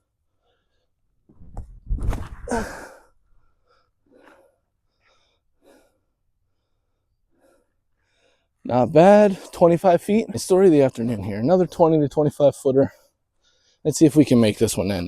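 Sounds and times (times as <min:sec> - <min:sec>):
faint short scuffs: 0:01.4 - 0:02.5
man exhaling sharply: 0:02.4 - 0:03.1.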